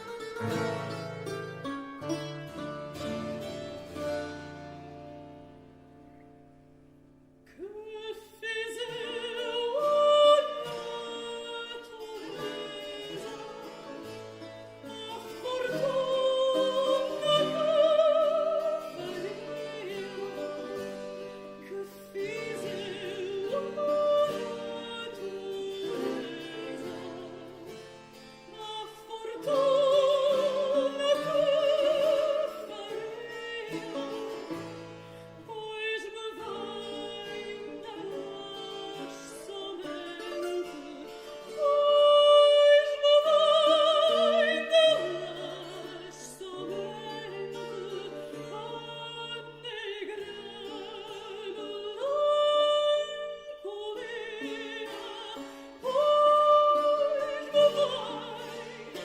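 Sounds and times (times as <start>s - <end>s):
classical singing with vibrato: 0.0s - 59.0s.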